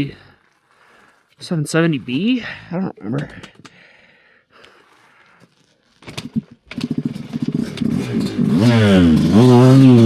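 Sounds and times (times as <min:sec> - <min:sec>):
dirt bike engine revving: 0:06.1 - 0:10.0.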